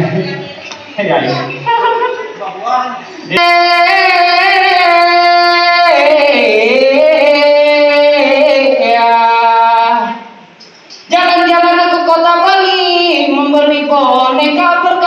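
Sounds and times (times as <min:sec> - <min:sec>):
woman singing long notes: 0:03.3 - 0:10.3.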